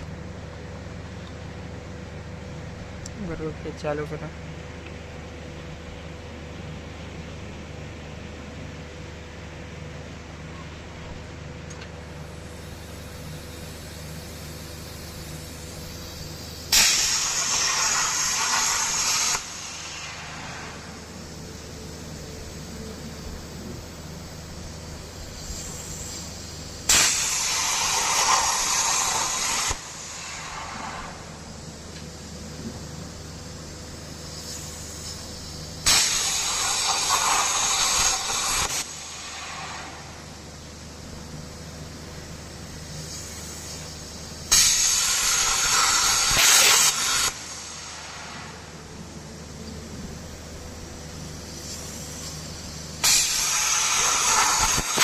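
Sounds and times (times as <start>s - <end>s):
low machine hum: 0.0s - 46.2s, 47.0s - 55.0s
plasma cutter torch hiss: 11.1s - 55.0s.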